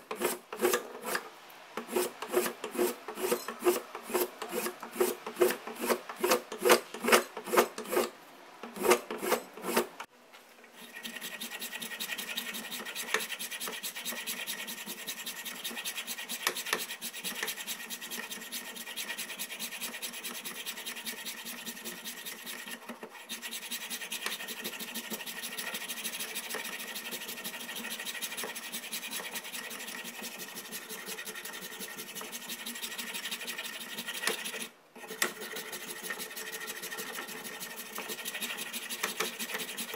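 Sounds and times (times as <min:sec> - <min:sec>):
file rasping on axe: 0:00.1 - 0:09.9, 0:10.8 - 0:39.9.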